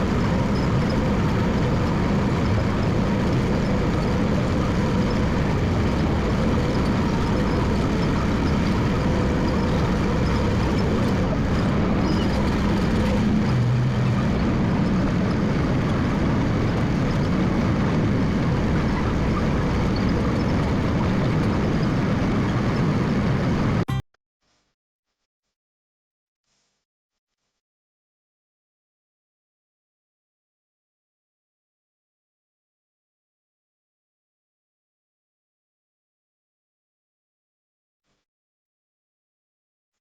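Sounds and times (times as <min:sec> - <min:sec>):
crawler dozer engine drone: 0:00.0 - 0:24.0.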